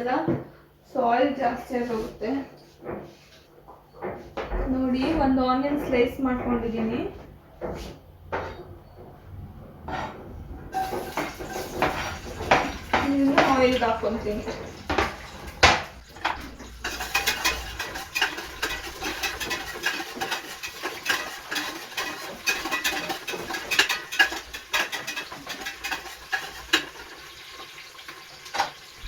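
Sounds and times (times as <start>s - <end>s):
onion frying in hot oil: 10.7s - 29.0s
utensil stirring in metal pot: 10.7s - 29.0s.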